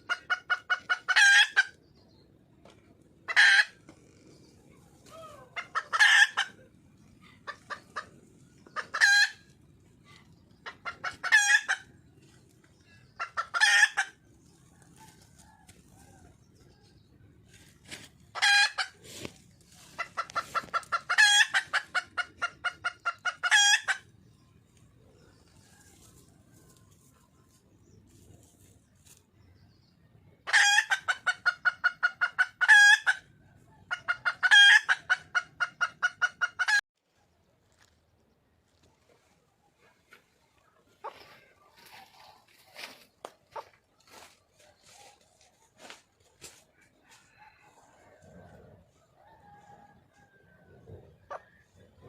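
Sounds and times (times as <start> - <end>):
quick hen clucks: 0.0 - 36.8, 38.7 - 52.0
hen cackling calls: 5.0 - 12.3, 13.0 - 14.8, 18.3 - 24.1, 30.4 - 33.3, 33.9 - 36.8.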